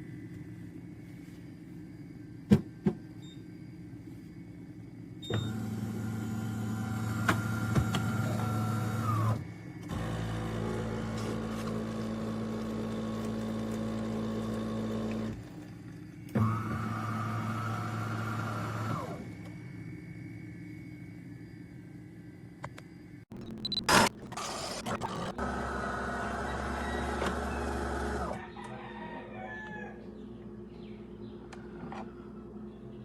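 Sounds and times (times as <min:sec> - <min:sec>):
espresso machine motor running: 0:24.0 - 0:28.3.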